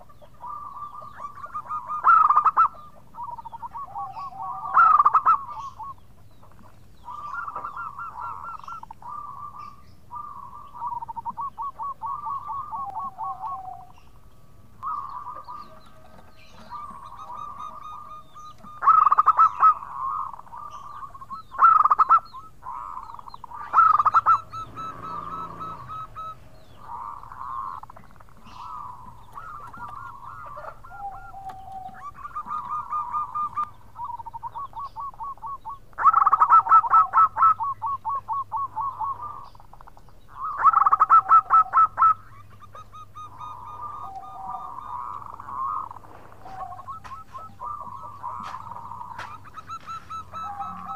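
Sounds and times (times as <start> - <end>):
dove cooing: 0.0 - 50.9.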